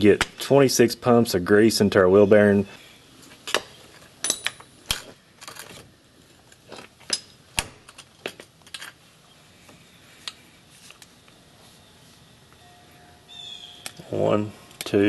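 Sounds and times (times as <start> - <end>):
metal tools clicking and clinking: 3.4 - 5.8, 6.4 - 9.0.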